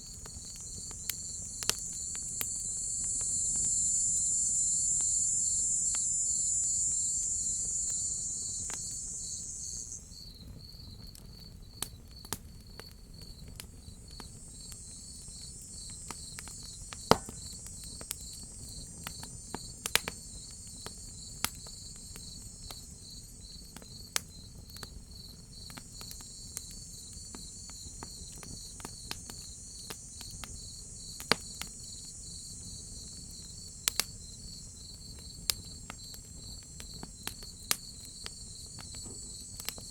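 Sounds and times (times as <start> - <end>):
wood fire crackling and popping: 0.0 - 10.1, 11.8 - 31.9, 32.8 - 39.9
loud high insect drone: 0.0 - 10.4, 13.8 - 23.4
crickets chirping: 0.0 - 39.9.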